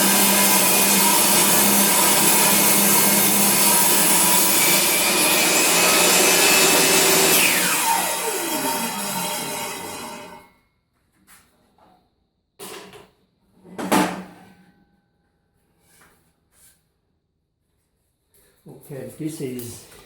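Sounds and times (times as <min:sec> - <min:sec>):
saw blade whine spinning down: 0:00.0 - 0:10.5
table saw cutting wood: 0:00.0 - 0:10.5.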